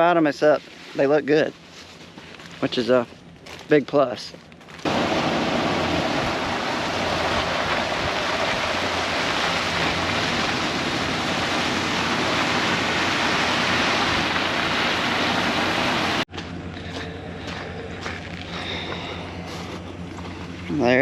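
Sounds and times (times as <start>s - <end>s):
leaves brushing against legs: 0.0s - 4.9s
plants rustling: 0.0s - 4.9s.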